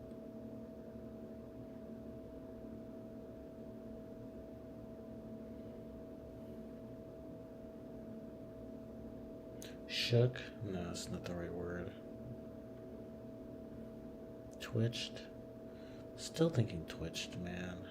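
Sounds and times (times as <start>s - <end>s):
steady hum of held tones: 0.0s - 17.9s.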